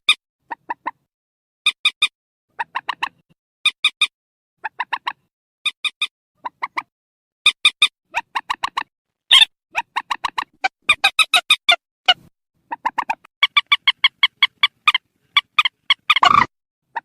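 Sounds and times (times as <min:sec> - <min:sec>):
swamphen calling: 0:12.7 - 0:17.0.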